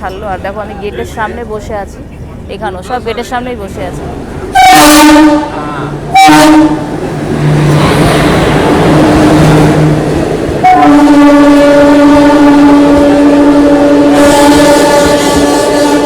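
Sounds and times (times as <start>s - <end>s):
moving train rumbling: 0.0s - 16.0s
train horn blast: 4.5s - 7.8s, 9.4s - 16.0s.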